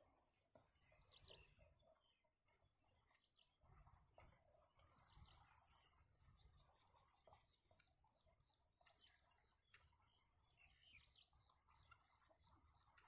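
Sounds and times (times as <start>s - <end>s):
faint high bird chirps: 0.8s - 2.3s, 2.9s - 13.0s.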